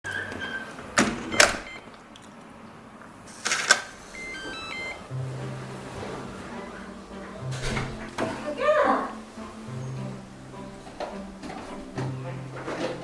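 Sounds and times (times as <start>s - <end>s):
steady low hum: 3.9s - 13.0s
electronic beeping chime: 4.2s - 5.1s.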